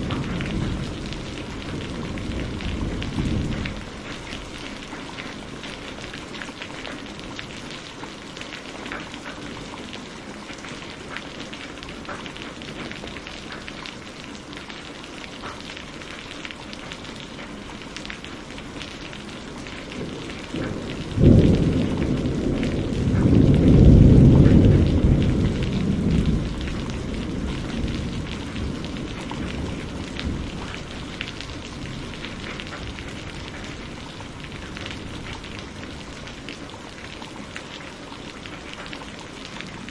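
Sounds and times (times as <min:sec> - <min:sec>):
thunder crack and rumble: 0:00.0 - 0:07.6, 0:19.5 - 0:37.1
rain falling: 0:00.0 - 0:39.9
raindrops pattering: 0:00.0 - 0:39.9.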